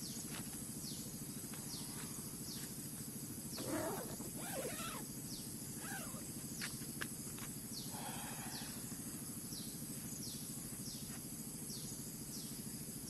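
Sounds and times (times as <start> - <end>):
rough animal call: 3.6 - 5.0, 5.8 - 6.2.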